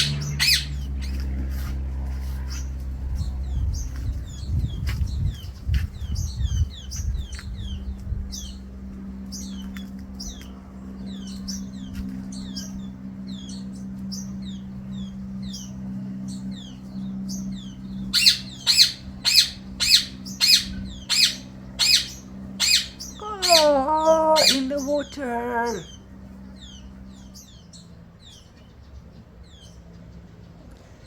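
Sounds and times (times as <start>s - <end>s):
bird squawking: 0.0s - 1.2s, 18.2s - 25.9s
small birds chirping: 0.0s - 1.7s, 2.4s - 31.0s
low steady hum: 0.0s - 31.0s.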